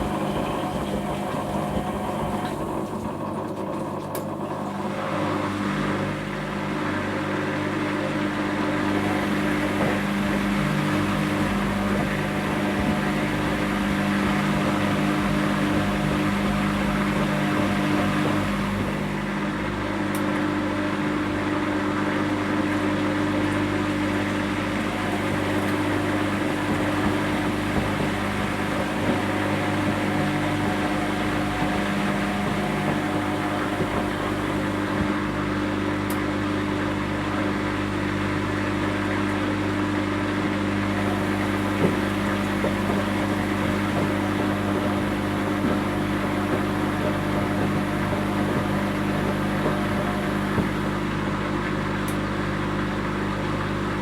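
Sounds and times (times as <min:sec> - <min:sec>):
washing machine running: 0:00.0 - 0:54.0.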